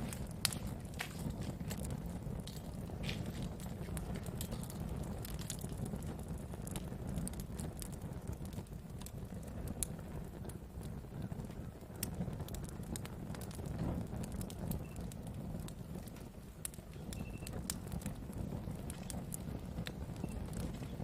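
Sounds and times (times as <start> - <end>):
wood fire crackling: 0.0 - 21.0
faint high whistles: 17.2 - 17.6.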